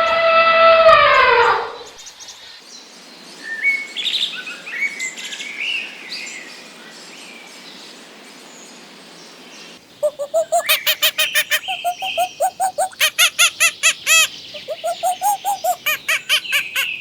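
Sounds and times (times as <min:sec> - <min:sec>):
small bird chirping: 0:10.0 - 0:17.0.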